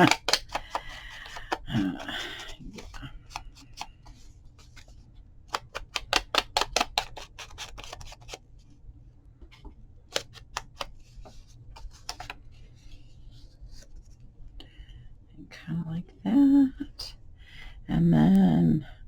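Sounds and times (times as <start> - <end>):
scissors snipping paper: 0.0 - 3.9, 5.5 - 8.4.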